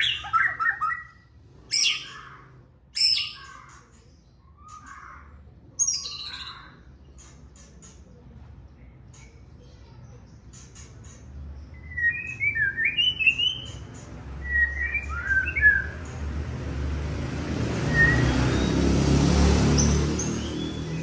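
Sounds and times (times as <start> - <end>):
bird warbling song: 0.0 - 8.2, 9.1 - 16.2, 17.6 - 21.0
rushing noise with low rumble: 15.0 - 21.0.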